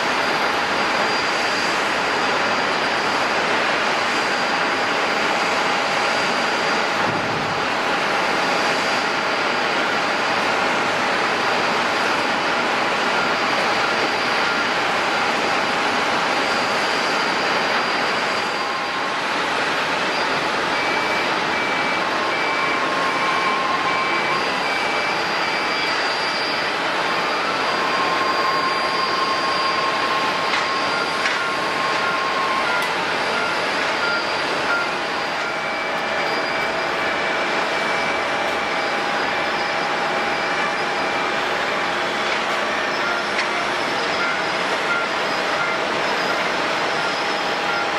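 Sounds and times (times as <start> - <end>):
high steady whines: 0.0 - 47.9
jet engines roaring: 0.0 - 47.9
repeating high beep: 20.1 - 47.9.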